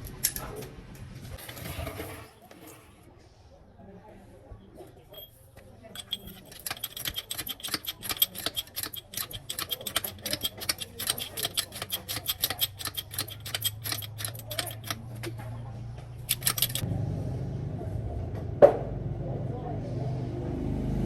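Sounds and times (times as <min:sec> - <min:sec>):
rapid sharp clicking: 0:06.0 - 0:15.4, 0:16.2 - 0:16.8.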